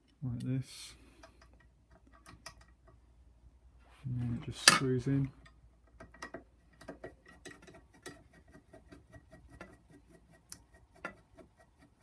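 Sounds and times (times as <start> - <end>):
small metal clicks and ticks: 1.2 - 3.0.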